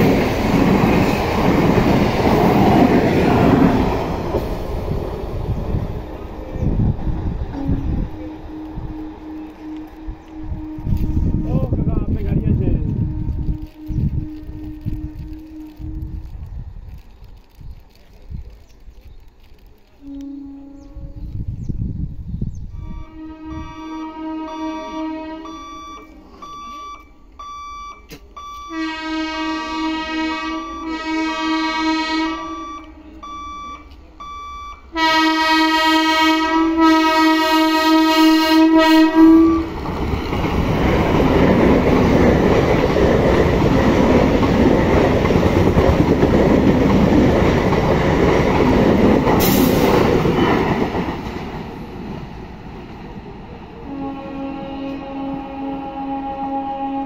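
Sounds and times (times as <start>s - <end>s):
train wheels rumbling on rail: 0.0s - 57.0s
train horn blasts: 7.5s - 16.5s, 20.0s - 21.6s, 22.7s - 26.7s, 28.6s - 33.7s, 34.9s - 39.8s, 53.8s - 57.0s.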